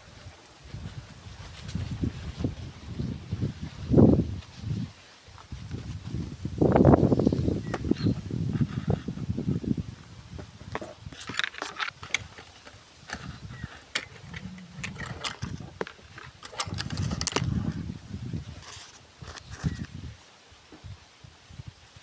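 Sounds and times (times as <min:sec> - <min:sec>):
rustling and crackling: 0:00.0 - 0:20.3
sharp clicks: 0:11.6 - 0:17.5.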